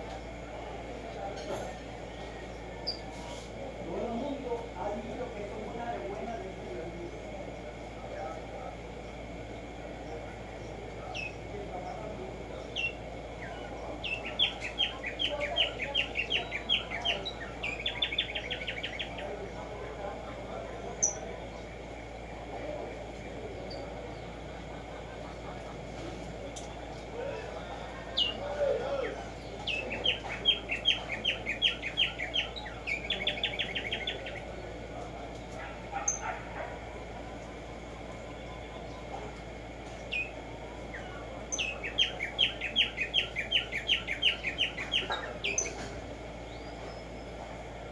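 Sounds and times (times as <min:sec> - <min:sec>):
sparrow singing: 0:09.0 - 0:47.9.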